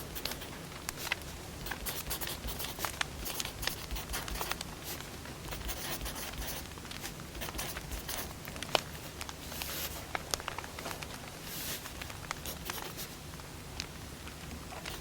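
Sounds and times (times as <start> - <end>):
firewood crackling and popping: 10.0 - 12.4.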